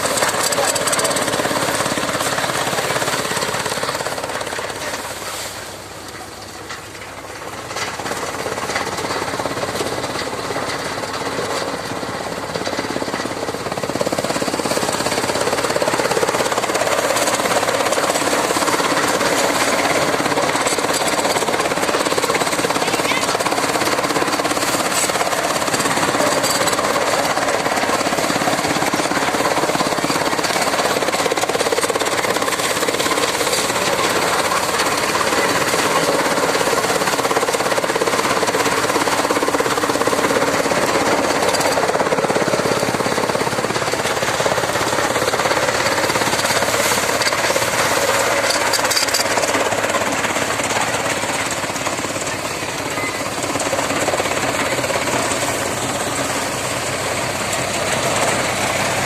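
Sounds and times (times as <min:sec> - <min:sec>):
chaff cutter rapid clatter: 0:00.0 - 0:05.6, 0:07.5 - 0:59.0
tractor engine: 0:00.0 - 0:59.0.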